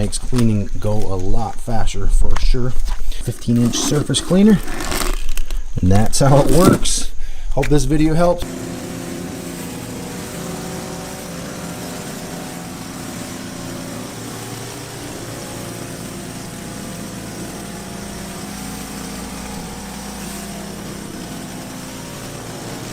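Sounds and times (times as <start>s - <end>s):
pressure washer engine running: 8.4s - 22.9s.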